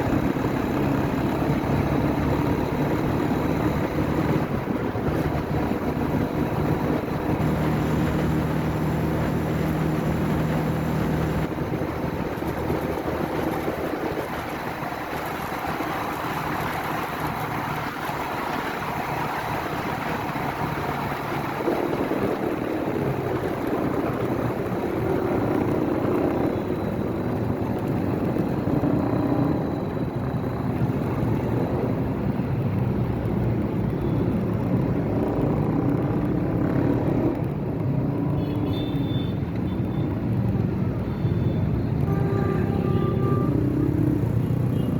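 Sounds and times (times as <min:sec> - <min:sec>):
motorcycle engine running: 0:00.0 - 0:18.9
road and wind noise: 0:00.0 - 0:44.9.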